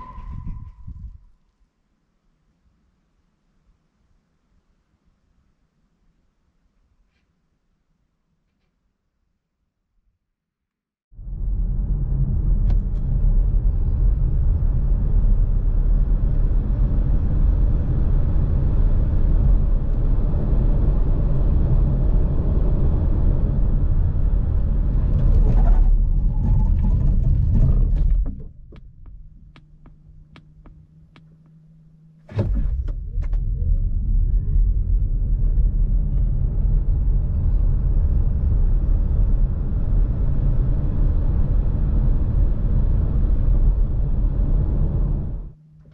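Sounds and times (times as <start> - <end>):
road rumble: 11.2 - 45.6
low hum with clicks: 11.2 - 45.9.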